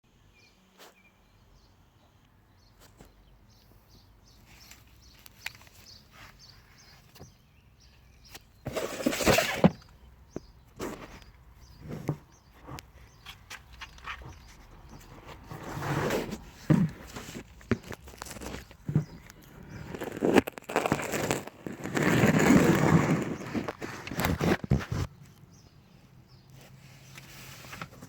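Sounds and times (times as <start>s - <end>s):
scraping or rustling burst: 8.6s - 9.9s, 15.2s - 25.1s.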